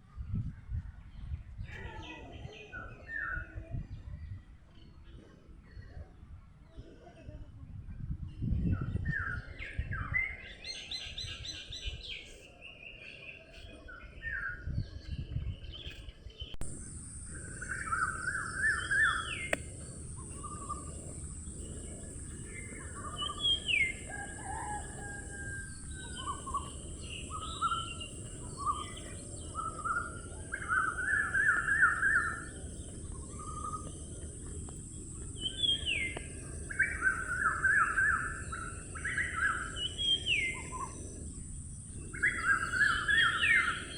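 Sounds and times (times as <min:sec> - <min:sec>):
birds singing and calling: 0:01.1 - 0:07.2, 0:08.3 - 0:43.9
steady high hiss: 0:16.6 - 0:43.9.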